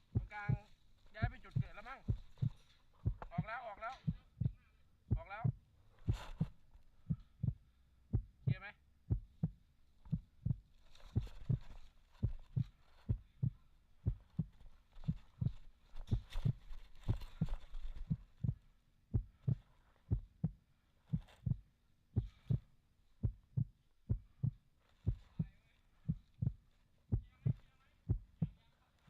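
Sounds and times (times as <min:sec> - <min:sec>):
footsteps dull thuds: 0:00.0 - 0:28.6
clothing rustling: 0:05.8 - 0:07.0, 0:10.1 - 0:18.6, 0:24.4 - 0:27.1.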